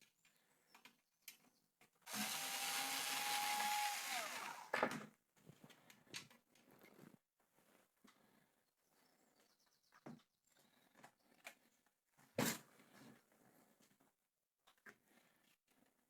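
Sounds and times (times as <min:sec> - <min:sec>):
electric screwdriver running: 0:02.1 - 0:04.8.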